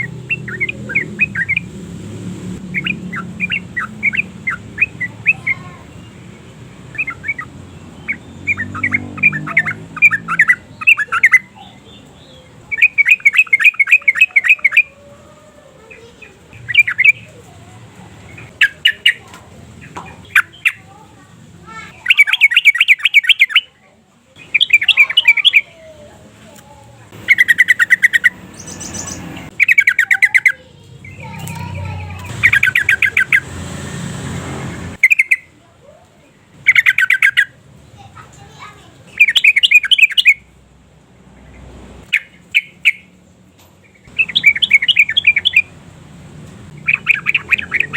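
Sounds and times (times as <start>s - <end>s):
bird singing bubbling notes: 0.0s - 1.8s, 6.9s - 11.5s, 27.2s - 30.6s.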